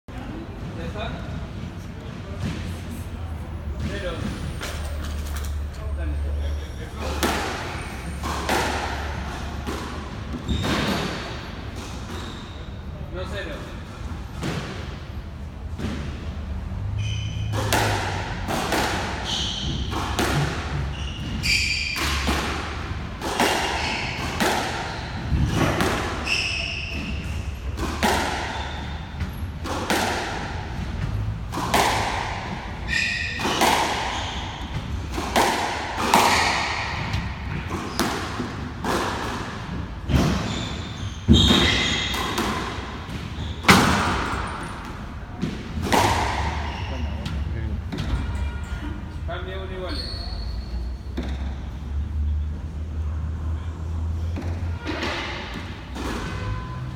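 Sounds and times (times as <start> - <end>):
shoes squeaking on court: 3.6 - 13.0, 15.9 - 48.6, 49.3 - 51.9
squash ball hits: 7.0 - 12.5, 17.4 - 48.6.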